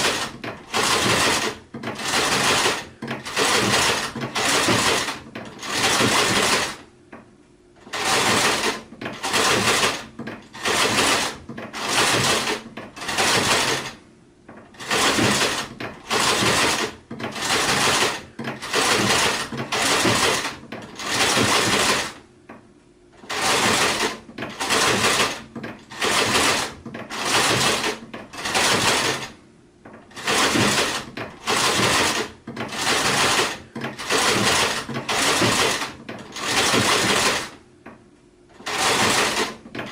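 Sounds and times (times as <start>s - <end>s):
sewing machine stitching: 0.0s - 6.9s, 7.8s - 22.2s, 23.2s - 37.6s, 38.5s - 39.9s.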